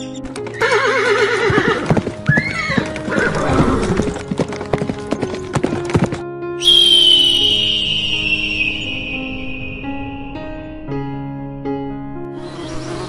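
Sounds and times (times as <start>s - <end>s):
clattering hoofbeats: 0.0s - 6.8s
background music: 0.0s - 13.0s
horse whinnying: 0.5s - 4.2s
high falling call: 6.6s - 11.2s.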